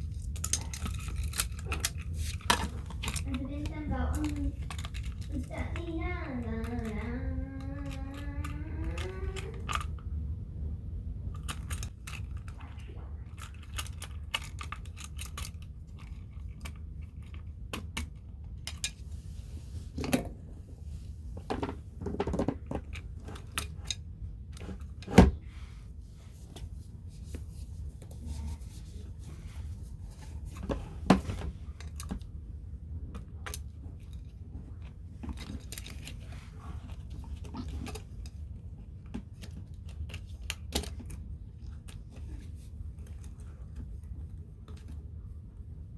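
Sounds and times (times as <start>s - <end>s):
low steady hum: 0.0s - 45.9s.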